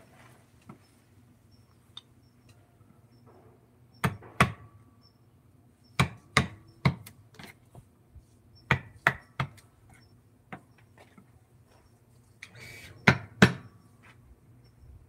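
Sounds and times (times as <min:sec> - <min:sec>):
mallet striking chisel into wood: 0:04.0 - 0:04.7, 0:06.0 - 0:07.1, 0:13.0 - 0:13.7.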